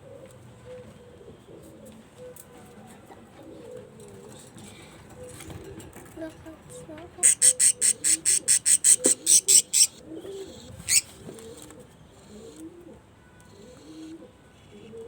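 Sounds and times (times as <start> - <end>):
pigeons cooing: 3.2 - 5.9, 7.2 - 15.0.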